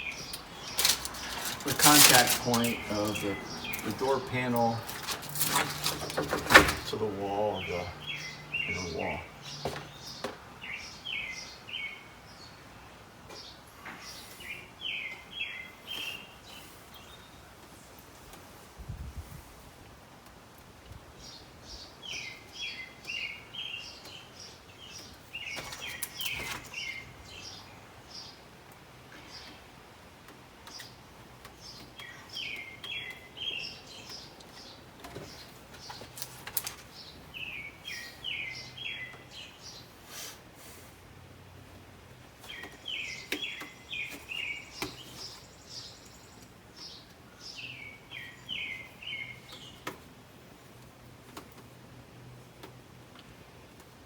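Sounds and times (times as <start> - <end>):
small bird chirping: 0.0 - 5.0, 7.4 - 12.6, 30.7 - 36.3, 36.9 - 39.9, 42.4 - 50.0
songbird singing: 0.0 - 18.6, 20.5 - 40.0, 41.5 - 54.0.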